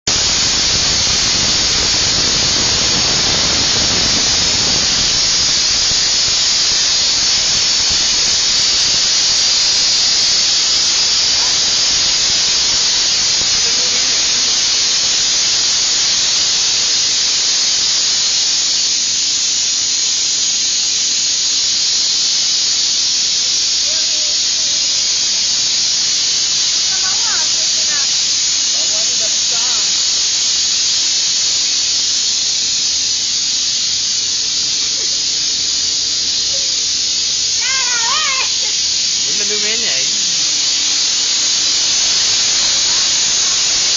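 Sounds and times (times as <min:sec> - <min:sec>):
deep rushing: 0:00.0 - 0:09.8
compressed air hissing: 0:00.0 - 0:18.9, 0:25.7 - 0:43.9.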